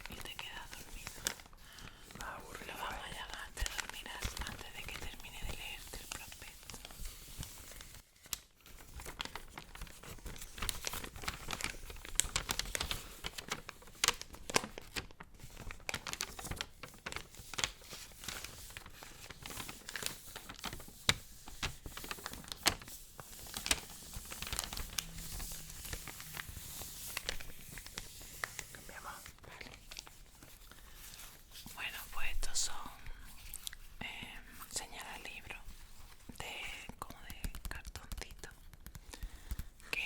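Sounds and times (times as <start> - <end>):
paper crinkling: 0.0 - 40.0.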